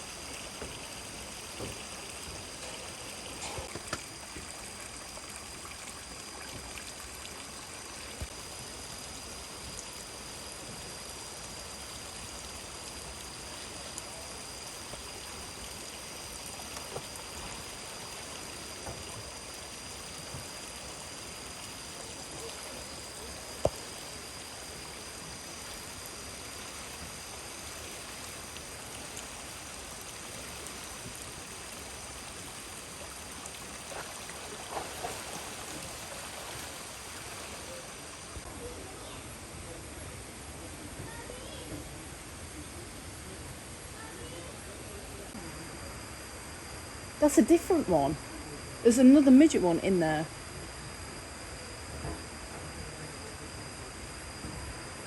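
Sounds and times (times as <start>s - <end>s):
stream water flowing: 0.0s - 38.5s
faint steady high tone: 40.9s - 55.0s.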